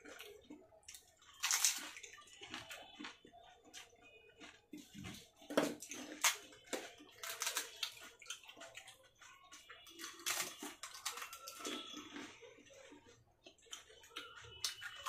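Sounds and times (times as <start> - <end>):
crisp shells crunching: 0.9 - 3.1, 5.8 - 8.4, 9.8 - 12.3.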